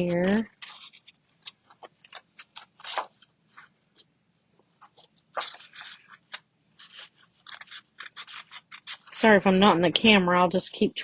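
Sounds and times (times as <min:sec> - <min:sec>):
scissors cutting paper: 0:00.0 - 0:03.3, 0:04.8 - 0:09.4.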